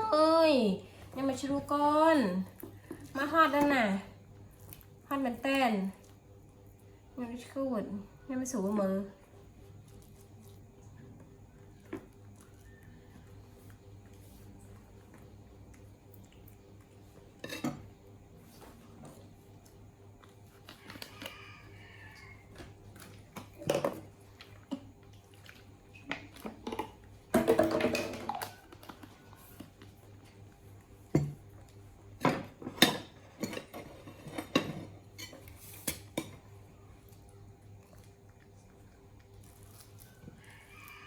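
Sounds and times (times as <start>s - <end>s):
dishes and utensils clinking: 17.4s - 17.9s, 26.5s - 29.0s
dishes rattling clatter: 26.5s - 28.5s.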